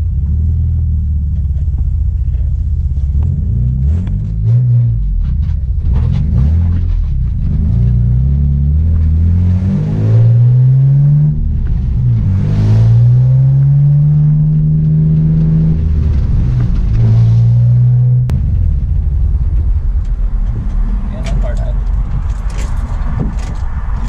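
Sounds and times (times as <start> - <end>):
car engine revving while driving: 0.0 - 18.4.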